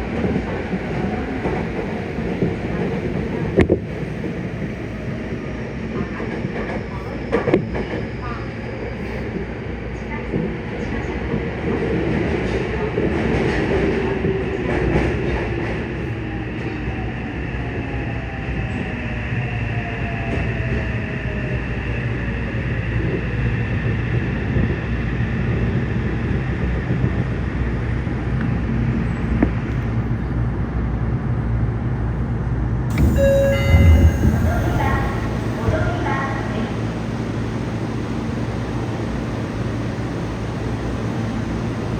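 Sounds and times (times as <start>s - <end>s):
train wheels rumbling on rail: 0.0s - 17.1s.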